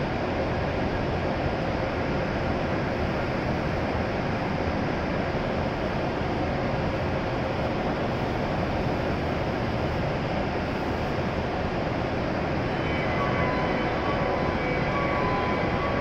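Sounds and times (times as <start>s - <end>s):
train hum and hiss: 0.0s - 16.0s.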